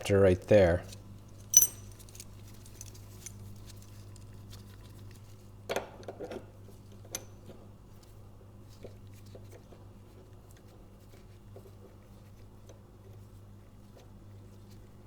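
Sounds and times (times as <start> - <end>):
light metal clicks and taps: 1.5 - 2.9.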